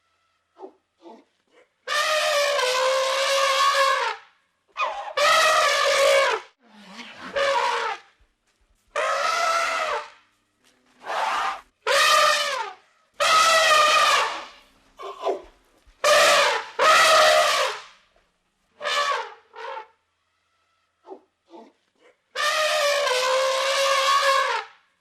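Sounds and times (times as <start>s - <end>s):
elephant trumpeting: 1.9s - 4.1s, 4.8s - 8.0s, 9.0s - 10.2s, 11.0s - 15.4s, 16.0s - 17.8s, 22.4s - 24.6s.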